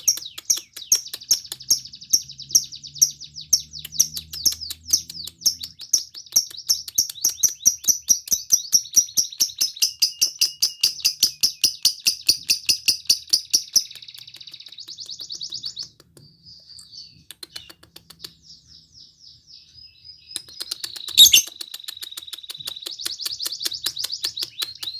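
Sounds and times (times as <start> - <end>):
lovebird chirping: 0.0 - 12.4, 14.4 - 24.9
sharp click: 20.4 - 21.7.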